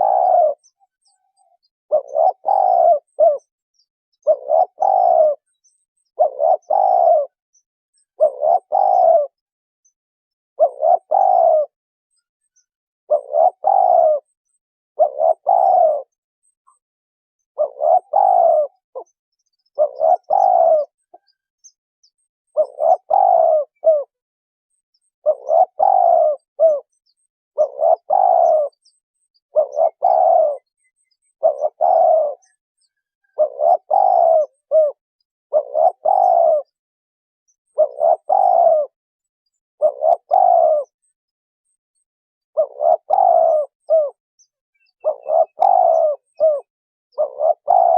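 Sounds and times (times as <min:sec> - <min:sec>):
dove cooing: 0:00.0 - 0:03.6, 0:04.2 - 0:07.4, 0:08.1 - 0:09.4, 0:10.6 - 0:11.8, 0:13.1 - 0:14.4, 0:15.0 - 0:16.2, 0:17.5 - 0:21.4, 0:22.5 - 0:24.2, 0:25.2 - 0:36.8, 0:37.6 - 0:39.0, 0:39.8 - 0:41.0, 0:41.9 - 0:44.2, 0:44.8 - 0:47.9.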